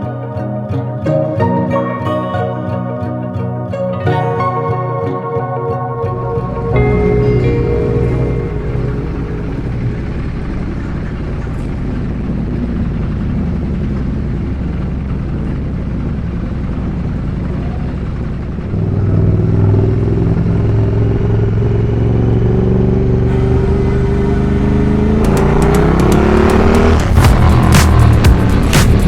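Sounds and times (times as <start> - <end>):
road and wind noise: 6.0 - 29.0
motorcycle engine running: 6.1 - 29.0.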